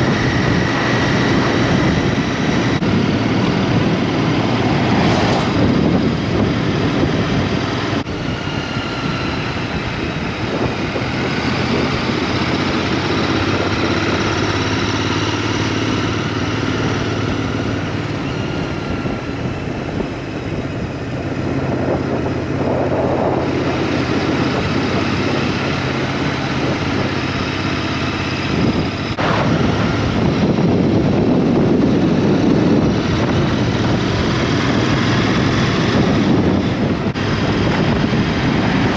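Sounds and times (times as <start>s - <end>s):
motorbike engine running: 0.0s - 38.9s
wind noise on microphone: 0.0s - 38.9s.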